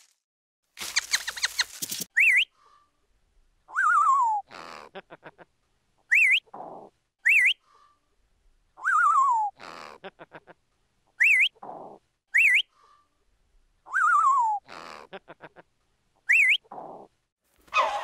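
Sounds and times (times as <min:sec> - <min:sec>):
parrot whistling: 0:06.1 - 0:06.4, 0:07.3 - 0:07.6, 0:11.2 - 0:11.5, 0:12.4 - 0:12.7, 0:16.3 - 0:16.6.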